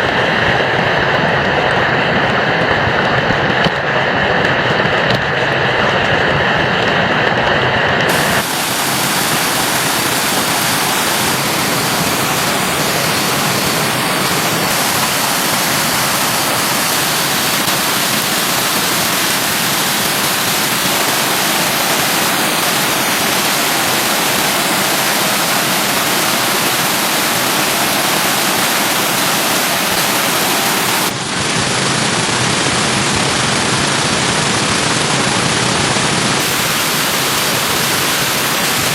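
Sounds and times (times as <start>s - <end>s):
stream water rushing: 8.0s - 31.2s, 36.4s - 38.9s.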